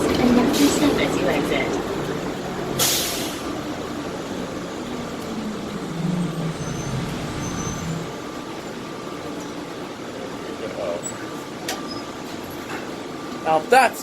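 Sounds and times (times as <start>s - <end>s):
train running: 0.0s - 11.6s
low humming motor: 1.1s - 8.7s.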